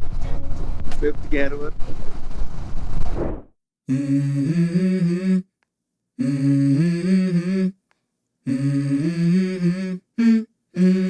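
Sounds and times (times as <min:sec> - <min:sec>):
person humming a melody: 0:03.9 - 0:05.5, 0:06.2 - 0:07.8, 0:08.4 - 0:11.0.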